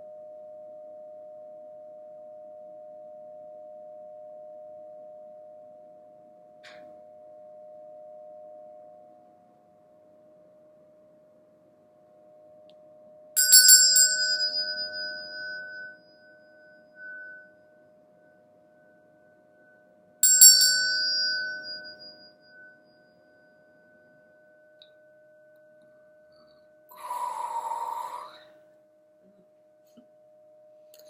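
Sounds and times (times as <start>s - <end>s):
small metal bell ringing: 13.4s - 25.1s.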